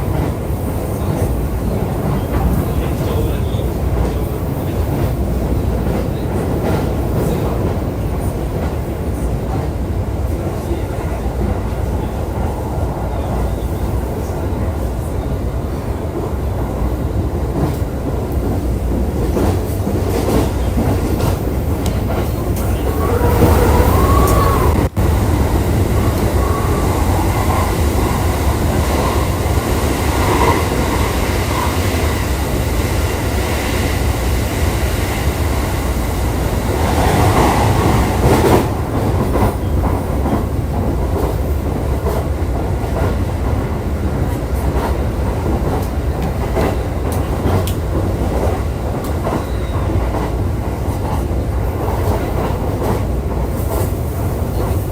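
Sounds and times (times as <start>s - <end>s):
clickety-clack over rail joints: 0.0s - 15.0s, 15.9s - 24.6s, 36.6s - 54.9s
train wheels rumbling on rail: 0.0s - 54.9s.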